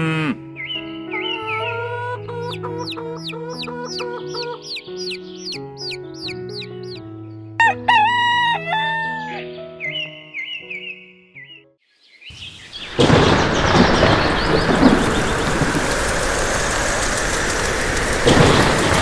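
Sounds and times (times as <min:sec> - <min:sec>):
background music: 0:00.0 - 0:19.0
high falling chirps: 0:00.8 - 0:07.0, 0:12.1 - 0:19.0
rooster crowing: 0:07.6 - 0:09.4.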